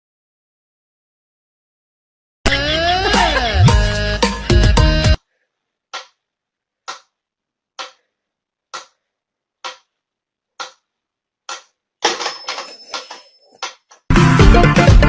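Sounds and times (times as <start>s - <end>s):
clattering noise: 11.5s - 14.1s.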